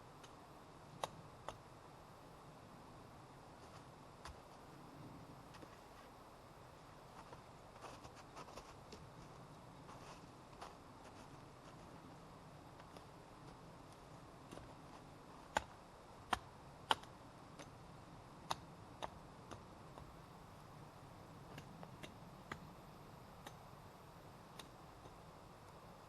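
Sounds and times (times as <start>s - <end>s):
faint steady background noise: 0.0s - 26.0s
sharp snaps and clicks: 1.0s - 1.6s, 15.5s - 15.7s, 16.3s - 17.8s, 18.4s - 20.1s.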